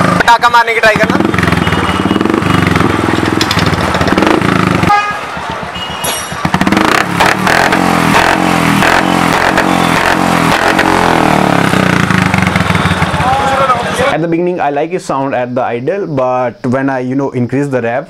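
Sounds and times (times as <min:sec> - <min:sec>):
motorcycle engine idling and revving: 0:00.0 - 0:14.2.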